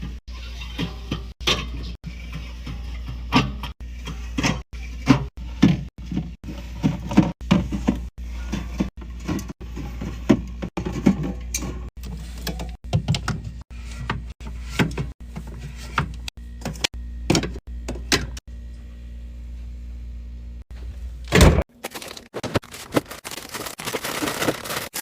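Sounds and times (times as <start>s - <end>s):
rustling: 21.8s - 25.0s.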